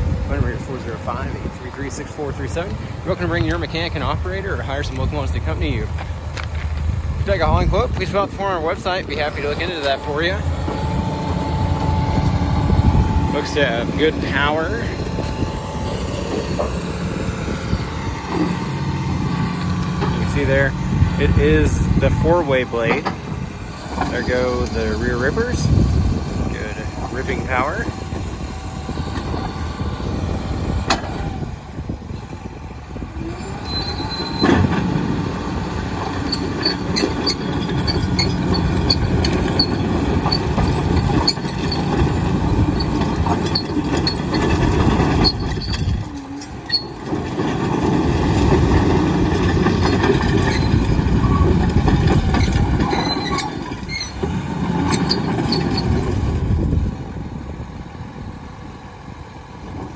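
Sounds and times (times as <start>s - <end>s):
diesel engine under load: 0.0s - 59.9s
steel tracks clanking and squealing: 7.3s - 28.4s, 33.2s - 56.4s.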